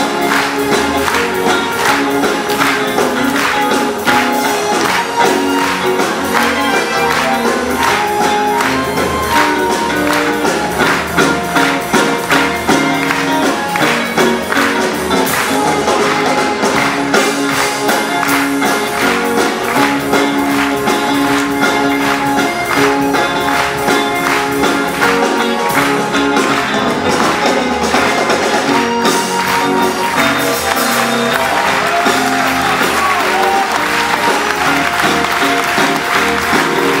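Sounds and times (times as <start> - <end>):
audience applause: 0.0 - 37.0
live band music: 0.0 - 37.0.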